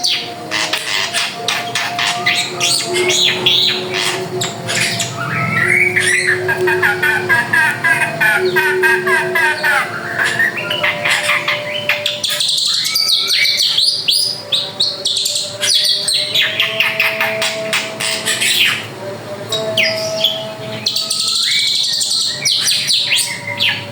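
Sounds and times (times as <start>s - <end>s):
bird singing rapid varied song: 0.0s - 18.9s.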